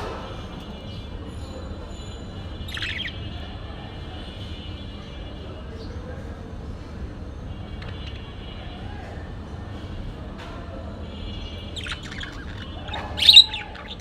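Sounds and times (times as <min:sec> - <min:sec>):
bird chirp: 0:00.8 - 0:03.6, 0:07.5 - 0:08.7, 0:11.2 - 0:14.0.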